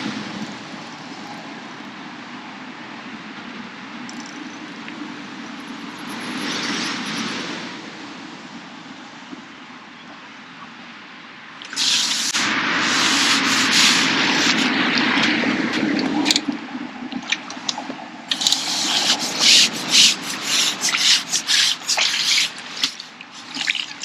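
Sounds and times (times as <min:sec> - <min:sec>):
water rushing splash: 0:11.6 - 0:24.0
water splashing and dripping: 0:11.6 - 0:24.0.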